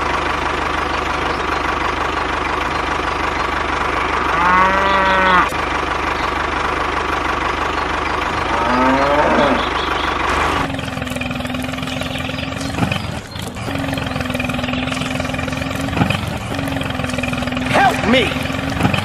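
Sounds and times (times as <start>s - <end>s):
engine running: 0.0s - 19.0s
cow mooing: 4.0s - 5.6s, 8.3s - 12.8s.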